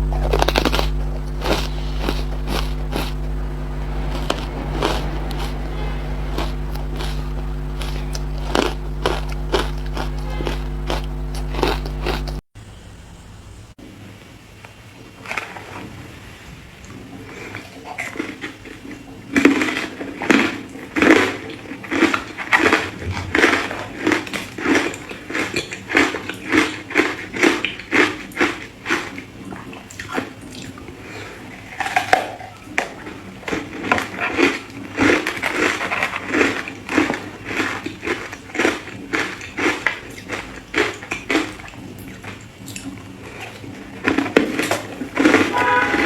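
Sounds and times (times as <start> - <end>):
ice being chewed: 0.0 - 12.4, 33.5 - 46.0.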